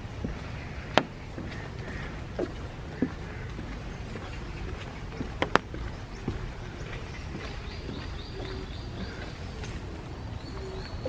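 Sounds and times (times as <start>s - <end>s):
dove cooing: 6.7s - 11.0s.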